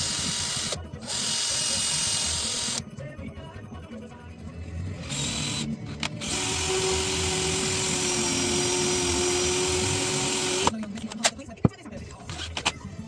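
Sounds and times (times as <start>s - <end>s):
power tool motor whine: 5.0s - 10.8s.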